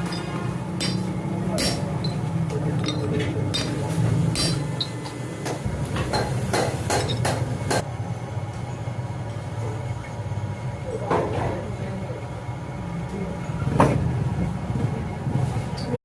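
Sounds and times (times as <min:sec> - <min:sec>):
metal tools clinking: 0:00.0 - 0:04.9
steady low hum: 0:00.0 - 0:16.0.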